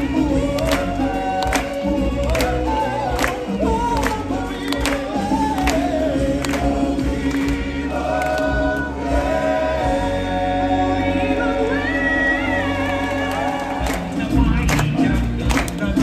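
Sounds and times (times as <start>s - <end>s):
bass accompaniment: 0.0s - 16.0s
choir singing long notes: 0.0s - 16.0s.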